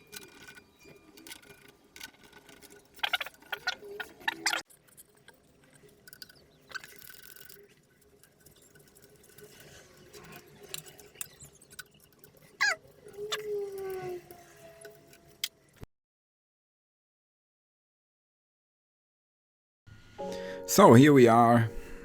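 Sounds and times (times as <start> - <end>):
tools and metal parts clattering: 0.0 - 15.7.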